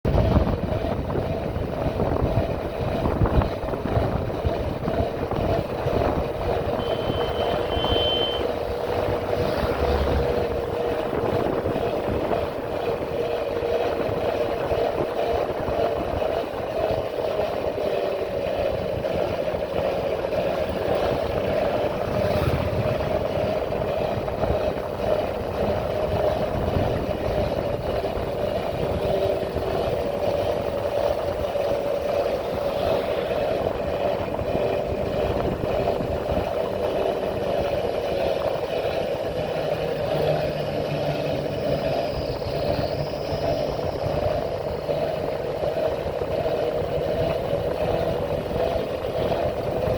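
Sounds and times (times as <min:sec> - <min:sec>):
motorcycle engine running: 0:00.0 - 0:49.9
wind noise rumble: 0:00.0 - 0:49.9.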